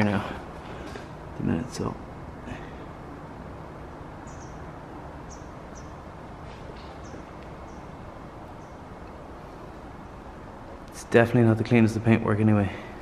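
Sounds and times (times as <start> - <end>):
steady background hiss: 0.0 - 13.0
high bird chirps: 4.2 - 6.0.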